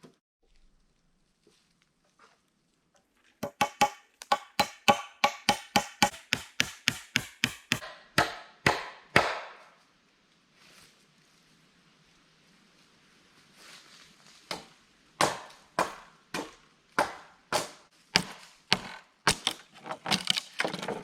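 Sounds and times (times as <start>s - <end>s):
hand tool striking wood: 3.4s - 9.6s, 14.5s - 21.0s.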